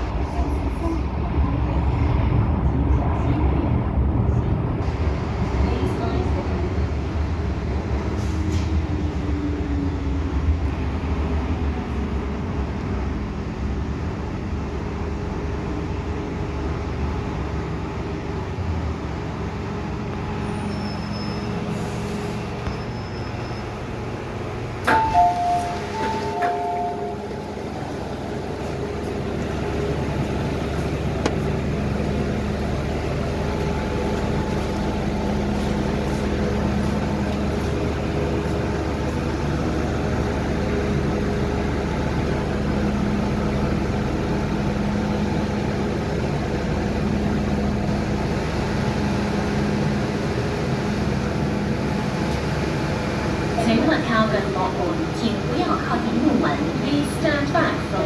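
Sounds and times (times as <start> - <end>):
electric metro train rumbling: 0.0 - 58.0
two-note chime: 24.9 - 27.3.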